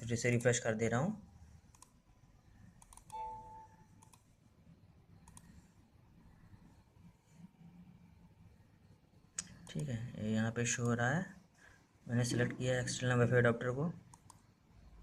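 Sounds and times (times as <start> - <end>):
faint computer mouse clicks: 1.7 - 2.0, 2.8 - 3.2, 4.0 - 4.3, 5.2 - 5.6, 14.1 - 14.5.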